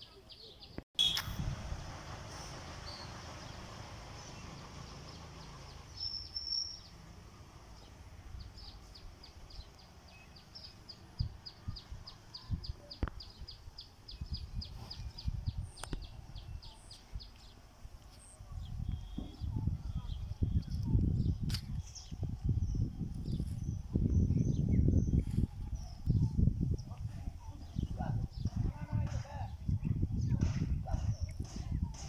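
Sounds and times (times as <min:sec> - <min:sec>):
low rumbling noise: 0:01.0 - 0:06.0
small bird chirping: 0:05.1 - 0:07.0, 0:07.8 - 0:28.6.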